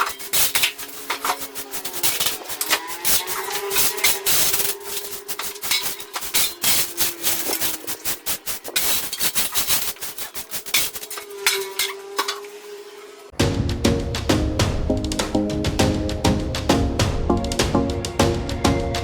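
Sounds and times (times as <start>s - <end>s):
hand tool scraping and clicking: 0.0s - 12.6s
music with drums: 13.4s - 19.0s.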